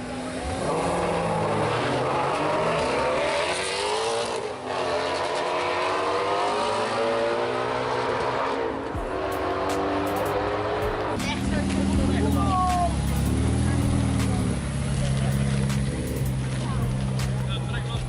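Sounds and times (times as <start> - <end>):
car accelerating hard: 0.0 - 18.0.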